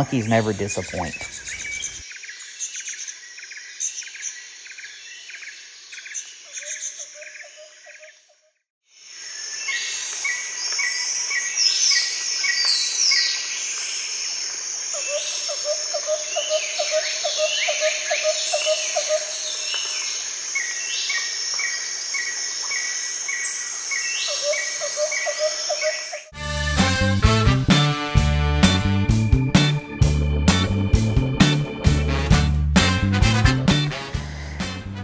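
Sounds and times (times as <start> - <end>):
birds chirping: 0.0 - 4.4, 28.6 - 35.0
low repeated bird notes: 26.8 - 35.0.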